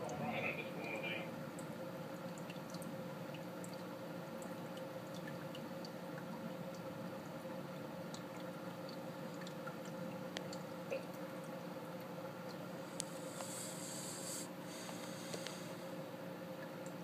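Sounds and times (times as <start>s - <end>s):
rain dripping: 0.0s - 13.3s
steady low hum: 0.0s - 17.0s.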